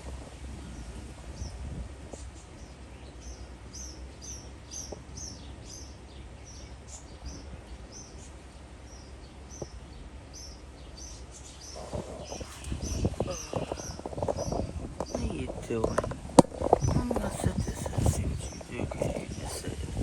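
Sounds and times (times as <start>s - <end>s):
wind rumble: 0.0s - 2.9s, 11.7s - 20.0s
songbird chirping: 0.0s - 20.0s.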